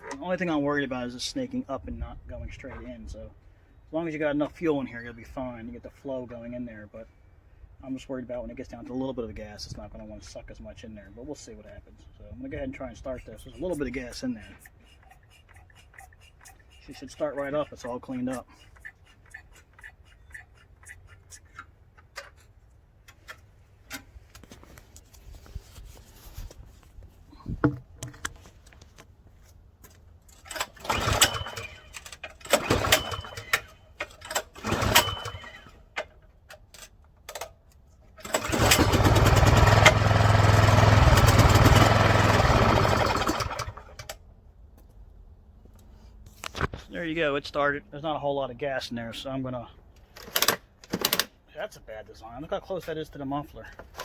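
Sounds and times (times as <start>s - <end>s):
recoil starter rope pulls: 30.3s - 35.8s, 38.2s - 44.2s
snowblower engine running: 30.8s - 31.8s, 32.5s - 33.6s, 34.6s - 35.6s, 38.2s - 44.1s.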